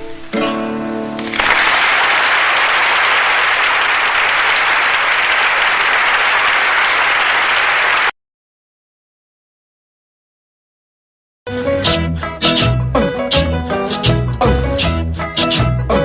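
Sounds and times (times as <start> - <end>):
audience applause: 1.2 - 8.1.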